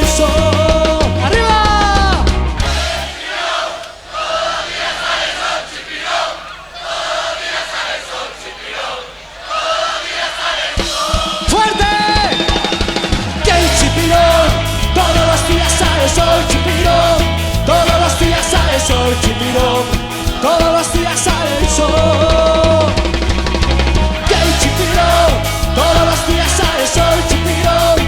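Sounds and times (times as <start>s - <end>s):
salsa band playing: 0.0s - 3.4s, 10.8s - 28.0s.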